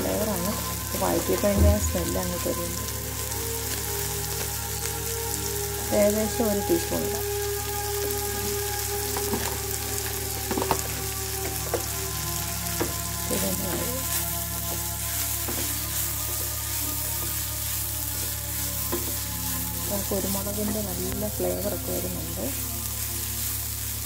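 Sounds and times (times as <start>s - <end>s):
mushrooms and onions sizzling: 0.0s - 24.0s
spatula scraping and tapping pan: 9.1s - 21.0s.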